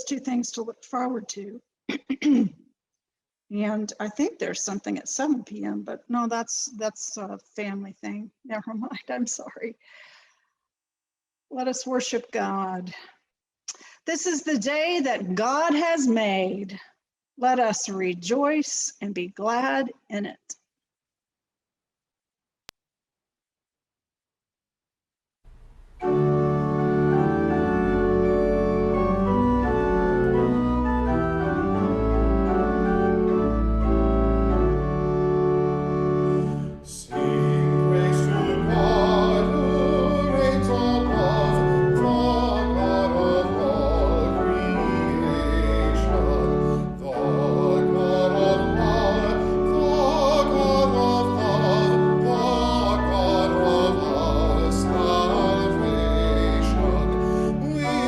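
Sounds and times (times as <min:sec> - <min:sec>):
organ playing hymn chords: 0:26.0 - 0:58.0
person singing with vibrato: 0:36.2 - 0:58.0.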